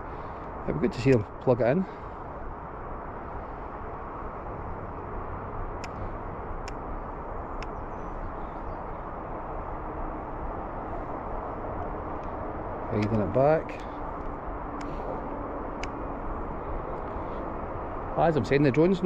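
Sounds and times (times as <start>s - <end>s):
outdoor rumble and hiss: 0.0s - 19.0s
faint clicks: 0.4s - 1.3s, 5.8s - 6.8s, 13.8s - 15.1s.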